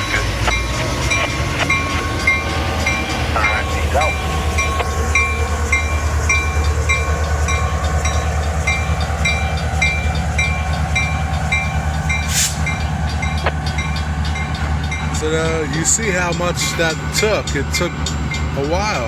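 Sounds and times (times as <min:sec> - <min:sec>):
railroad crossing bell ringing: 0:00.0 - 0:19.0
train rumbling slowly: 0:00.0 - 0:19.0
short hiss: 0:12.2 - 0:12.7.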